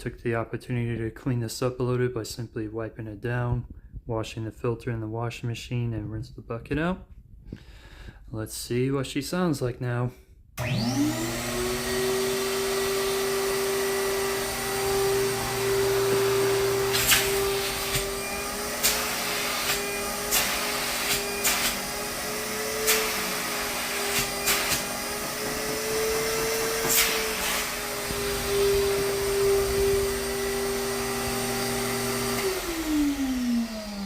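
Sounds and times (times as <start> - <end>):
motor winding down: 10.6 - 34.0
vacuum motor whining: 10.6 - 34.0.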